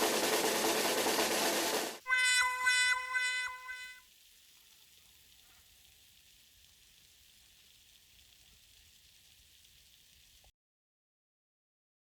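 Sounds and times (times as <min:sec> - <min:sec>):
faint steady hiss: 0:02.1 - 0:10.5.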